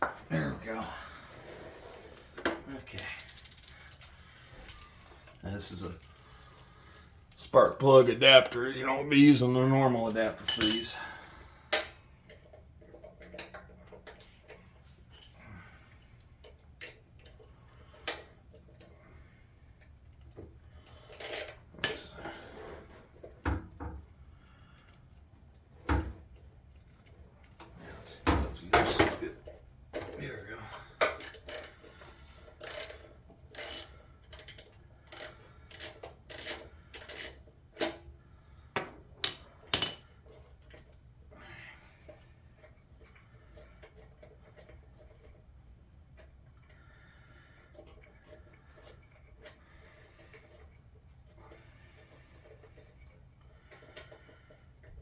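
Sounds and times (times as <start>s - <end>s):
metal hand tools clinking: 2.9s - 4.0s, 10.4s - 11.0s, 21.2s - 22.0s, 31.2s - 31.7s, 32.6s - 33.0s, 33.6s - 37.4s, 39.2s - 40.0s
wrench metallic clicks and taps: 31.0s - 31.7s, 32.6s - 33.0s, 33.6s - 38.0s.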